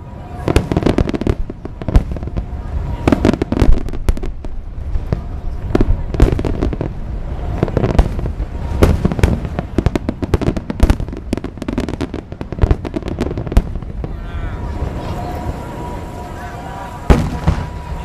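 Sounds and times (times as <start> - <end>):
fireworks booming and crackling: 0.0 - 18.0.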